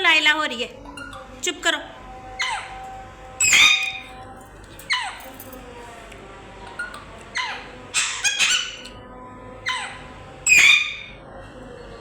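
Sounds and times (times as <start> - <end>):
parrot squawking: 2.4 - 2.8, 3.4 - 4.0, 4.9 - 5.3, 7.3 - 8.9, 9.6 - 11.2.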